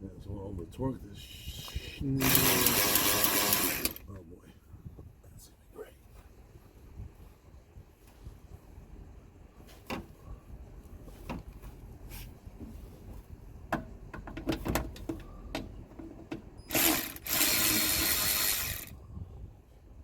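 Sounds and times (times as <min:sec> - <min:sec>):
loud harsh rasp: 0:02.2 - 0:04.0, 0:16.7 - 0:18.9.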